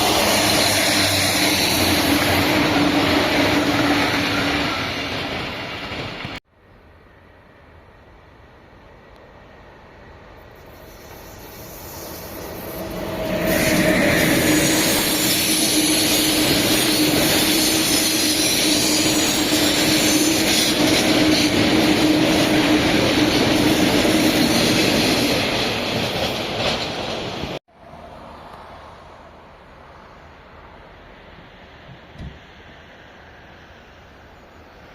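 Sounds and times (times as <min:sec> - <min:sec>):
train wheels rushing on rails: 0:00.0 - 0:06.4, 0:09.0 - 0:29.2
faint hiss: 0:06.6 - 0:13.0.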